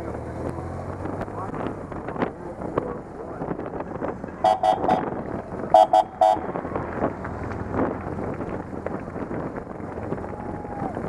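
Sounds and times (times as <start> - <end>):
vehicle horn beeping: 4.4 - 5.1, 5.7 - 6.5.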